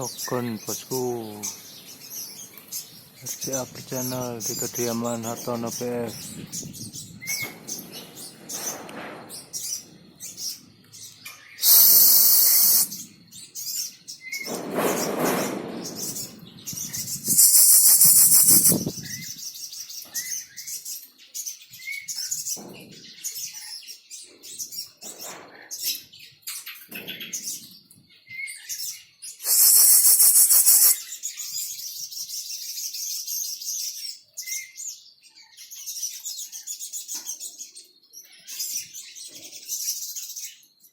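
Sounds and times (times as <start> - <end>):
caged songbirds chirping: 0.0 - 40.9
loud high rapid bird trills: 11.5 - 19.4, 29.4 - 31.1.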